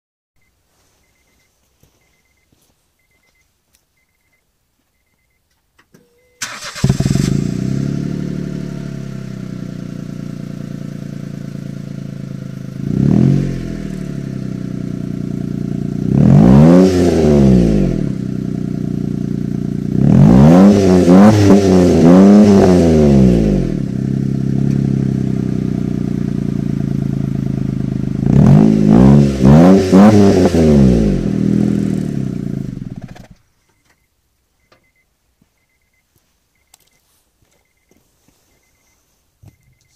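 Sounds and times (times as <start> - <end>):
car engine starting and revving: 6.4 - 33.4.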